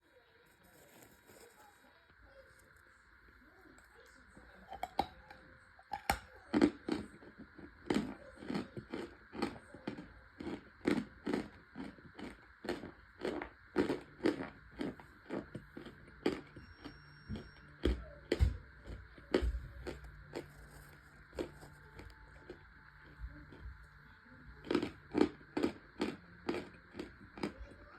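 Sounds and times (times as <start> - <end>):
crunchy chewing: 0.4 - 2.8, 3.8 - 27.9.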